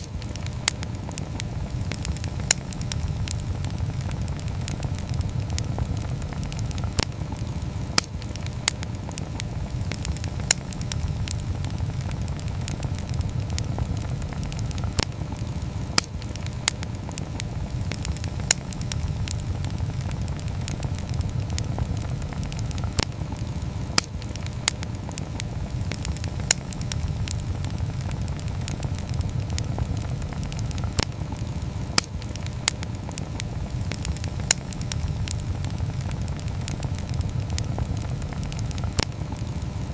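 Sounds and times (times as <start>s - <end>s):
campfire pops and crackles: 0.0s - 39.9s
fire low rumble: 0.0s - 39.9s.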